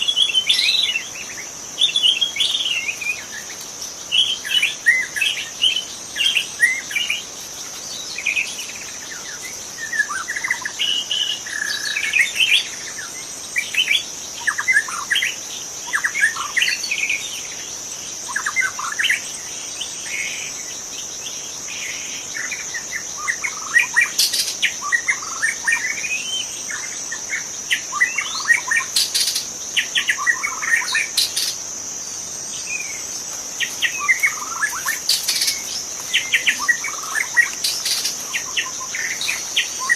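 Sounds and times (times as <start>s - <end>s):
insect drone: 0.0s - 39.9s
bird whistling song: 23.2s - 31.6s, 33.6s - 39.9s.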